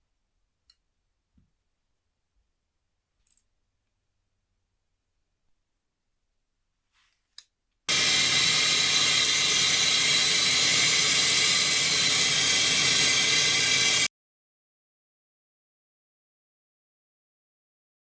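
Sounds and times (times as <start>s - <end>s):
loud steady hiss: 7.9s - 14.1s.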